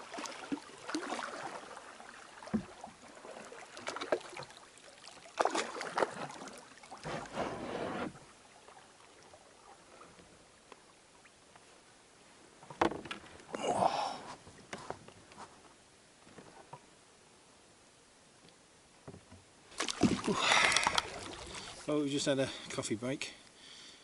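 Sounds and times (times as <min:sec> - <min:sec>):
paddle swishing water: 0:00.0 - 0:11.8, 0:19.7 - 0:22.1
paddle knocking canoe: 0:00.1 - 0:04.5, 0:12.6 - 0:15.0.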